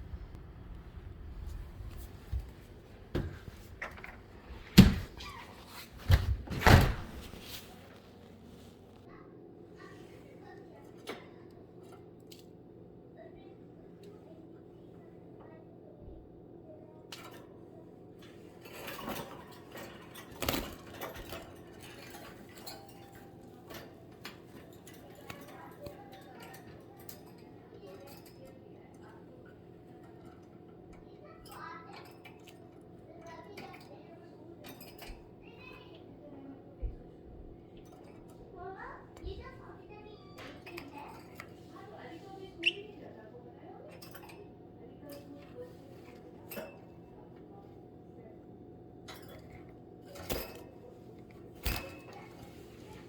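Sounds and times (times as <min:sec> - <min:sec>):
rustling: 0:01.4 - 0:09.1.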